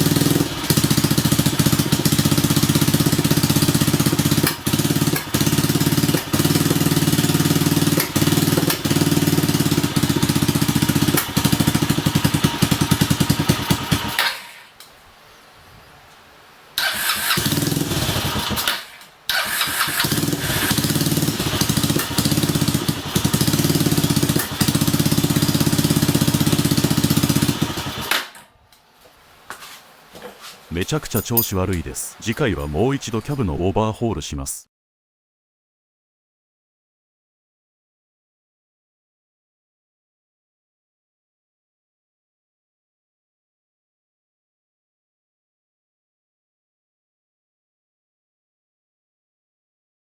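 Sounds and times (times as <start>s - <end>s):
motorcycle engine running roughly: 0.0s - 14.2s, 19.8s - 28.1s.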